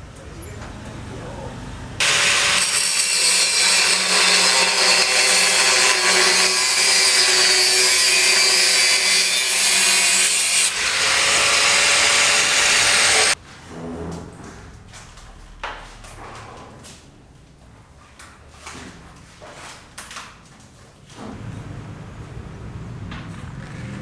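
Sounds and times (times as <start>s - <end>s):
power tool running under load: 2.0s - 13.4s.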